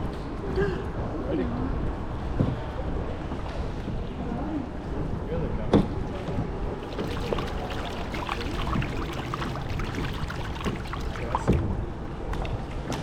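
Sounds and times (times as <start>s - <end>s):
water drips: 6.8s - 11.7s
kayak paddles splashing: 6.8s - 12.5s.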